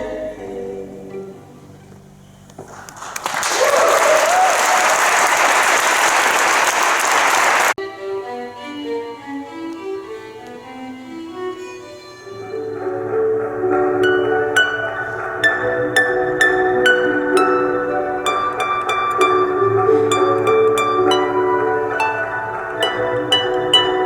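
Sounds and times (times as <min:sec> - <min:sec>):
audience applauding: 0:02.7 - 0:07.8
audience cheer: 0:03.2 - 0:07.8
harp playing plucked notes: 0:12.3 - 0:24.0.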